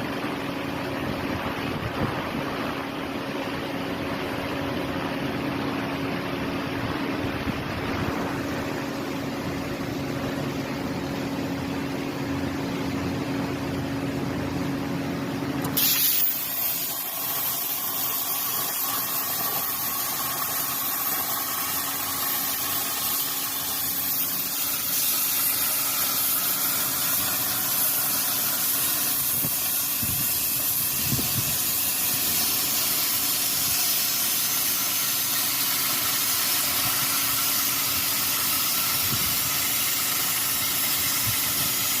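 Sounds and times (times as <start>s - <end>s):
steady machine hum: 0.0s - 42.0s
plasma cutting arc hissing: 15.6s - 42.0s.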